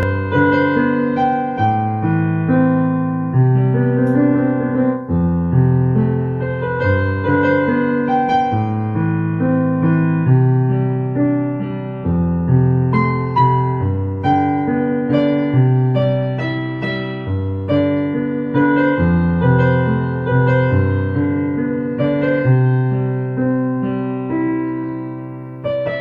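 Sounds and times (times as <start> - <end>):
slow calm piano music: 0.0 - 26.0.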